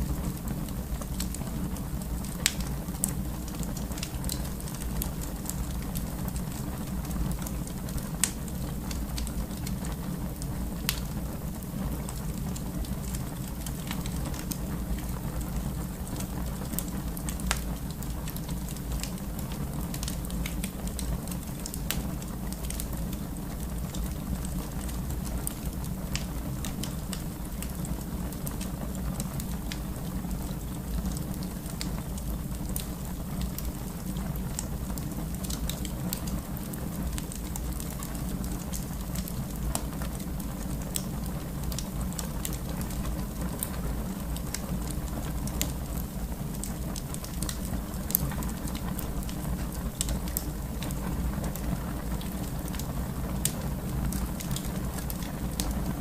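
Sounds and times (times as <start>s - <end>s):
fire crackling and popping: 0.0s - 56.0s
fire flames rumbling: 0.0s - 56.0s.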